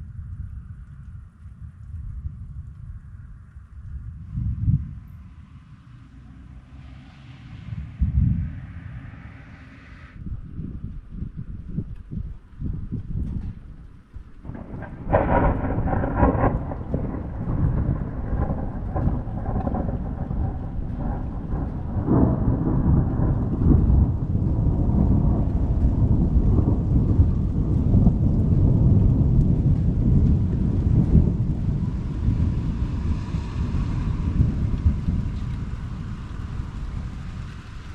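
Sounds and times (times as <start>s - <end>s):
thunder crack and rumble: 0.0s - 37.9s
steady rain hissing: 14.4s - 37.9s.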